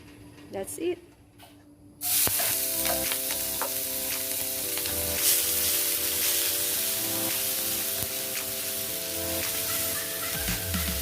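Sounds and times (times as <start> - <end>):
food sizzling in an oiled pan: 2.0 - 11.0
background music: 2.4 - 11.0.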